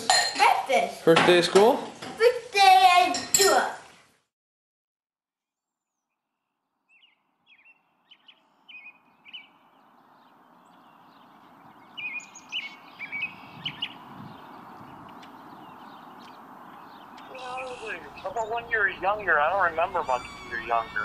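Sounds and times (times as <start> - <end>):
outdoor background noise: 0.0 - 4.3, 6.5 - 21.0
birds chirping: 5.8 - 21.0.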